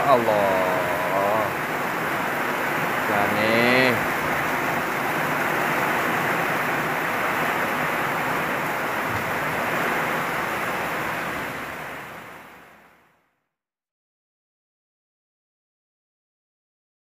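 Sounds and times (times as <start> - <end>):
heavy rain pouring: 0.0 - 13.2.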